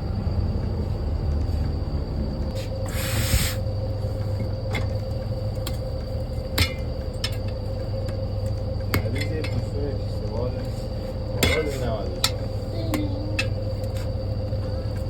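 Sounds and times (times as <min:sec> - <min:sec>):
steady low hum: 0:00.0 - 0:15.0
air hissing: 0:02.5 - 0:03.8.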